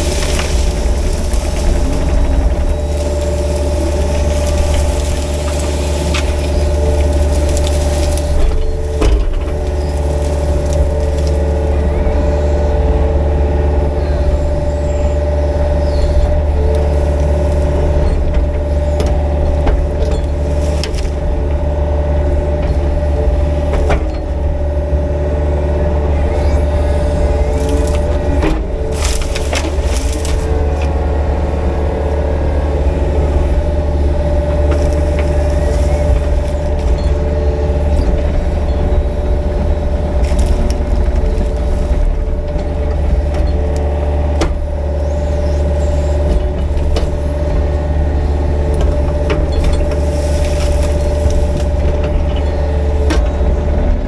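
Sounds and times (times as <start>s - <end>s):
wood cracking and knocks: 0.0s - 13.3s, 14.2s - 24.8s, 26.2s - 31.2s, 33.6s - 54.0s
excavator diesel engine running: 0.0s - 54.0s
rake tearing through brush: 26.5s - 30.9s.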